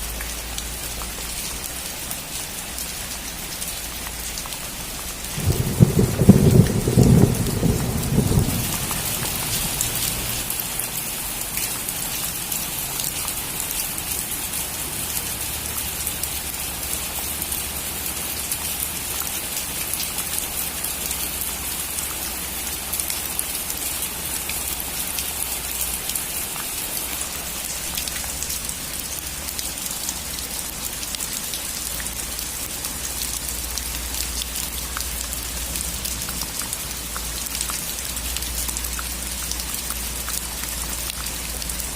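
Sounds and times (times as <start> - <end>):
heavy rain on a roof: 0.0 - 41.9
low thunder rumble: 5.3 - 10.5.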